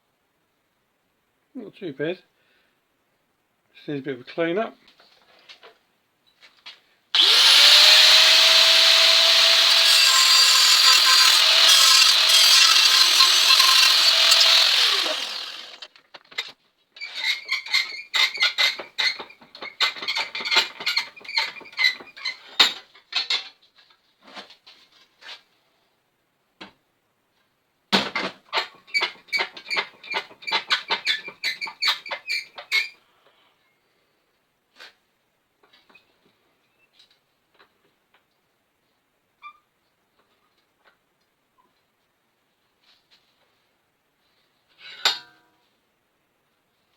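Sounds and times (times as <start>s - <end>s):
power tool on sheet metal: 7.2s - 15.9s
scraping strokes on metal: 7.6s - 15.9s.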